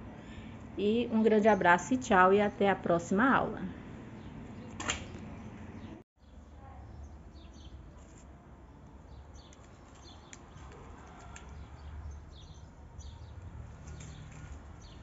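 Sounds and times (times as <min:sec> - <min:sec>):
faint small birds chirping: 0:05.8 - 0:08.2, 0:09.1 - 0:15.0.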